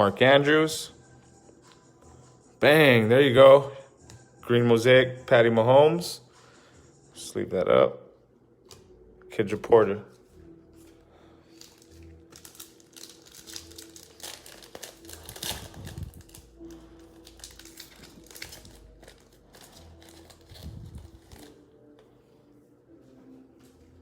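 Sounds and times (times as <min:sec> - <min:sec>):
card pack wrappers crinkling: 0:11.5 - 0:21.6.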